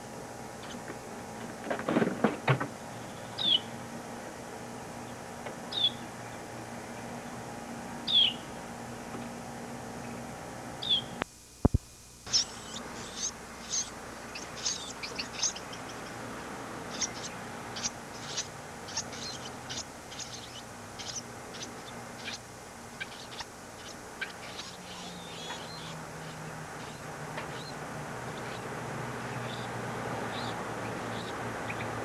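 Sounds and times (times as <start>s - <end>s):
low hum and hiss: 0.0s - 32.0s
baby birds chirping: 12.3s - 22.4s, 23.0s - 28.7s, 29.3s - 32.0s.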